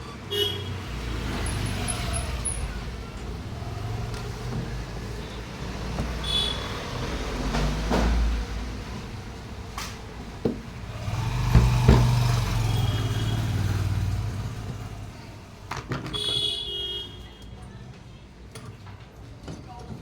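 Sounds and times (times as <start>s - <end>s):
passing vehicle engine hum: 0.7s - 15.7s
sharp clicks and knocks: 11.5s - 12.4s.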